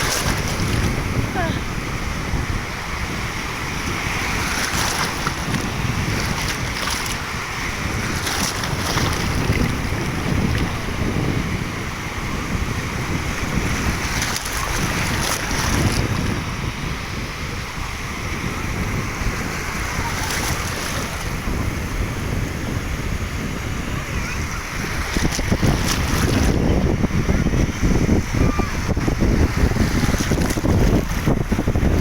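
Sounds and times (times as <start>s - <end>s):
surf: 0.0s - 32.0s
wind buffeting microphone: 0.0s - 32.0s.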